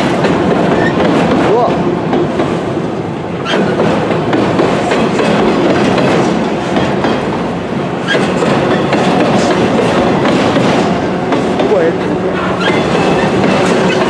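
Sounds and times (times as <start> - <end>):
train wheels clicking over rail joints: 0.0 - 14.0.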